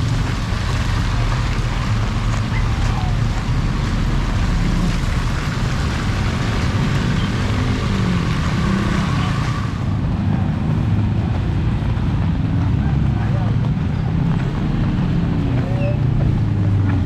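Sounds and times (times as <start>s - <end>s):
heavy rain hiss: 0.0s - 10.0s.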